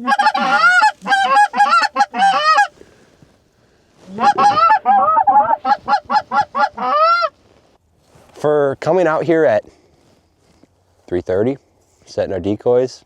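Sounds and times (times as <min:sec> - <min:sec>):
geese honking: 0:00.0 - 0:02.7, 0:04.1 - 0:07.4.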